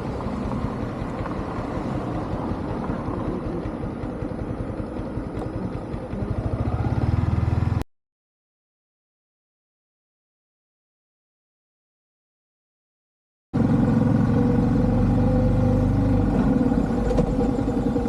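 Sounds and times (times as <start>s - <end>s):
motorcycle engine running: 0.0s - 7.8s, 13.6s - 18.0s.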